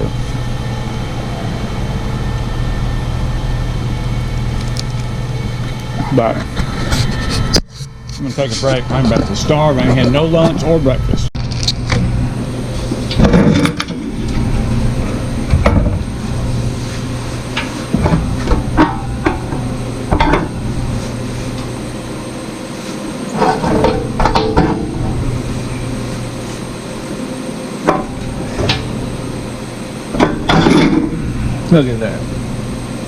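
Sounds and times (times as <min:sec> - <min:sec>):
steady low hum: 0:00.0 - 0:33.0
parts knocking and clattering: 0:17.5 - 0:20.6, 0:23.4 - 0:24.9, 0:30.2 - 0:31.2.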